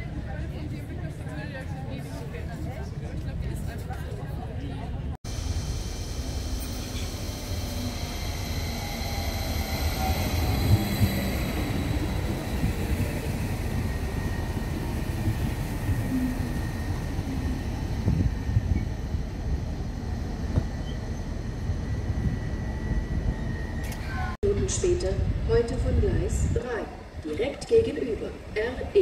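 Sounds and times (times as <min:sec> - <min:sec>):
train high whine: 0:05.3 - 0:25.9
train wheels rumbling: 0:05.3 - 0:27.2.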